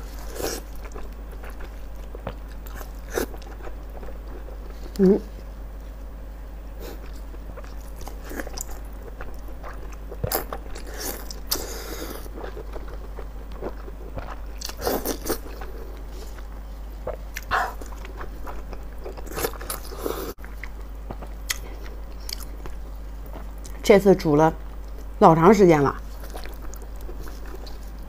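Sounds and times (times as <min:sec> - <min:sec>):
wet chewing and smacking: 0:07.0 - 0:23.8, 0:26.0 - 0:28.0.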